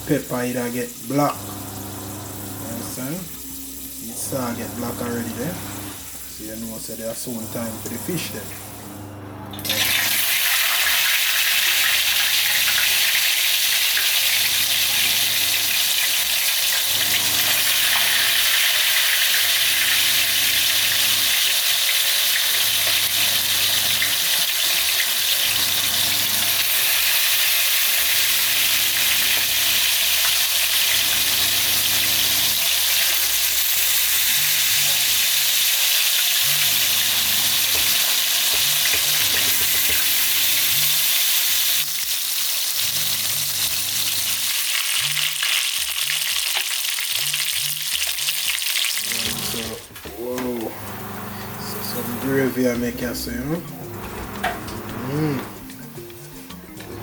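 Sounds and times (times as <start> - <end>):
fish sizzling in hot oil: 9.7 - 49.5.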